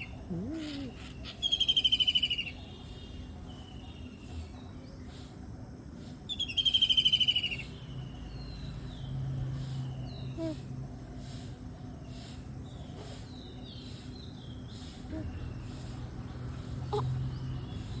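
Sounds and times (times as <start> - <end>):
faint bird chirps: 0.0 - 5.4, 6.3 - 18.0.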